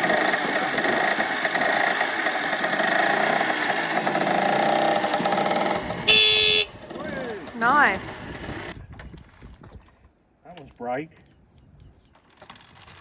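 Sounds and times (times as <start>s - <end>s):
moped engine running: 0.0s - 8.8s.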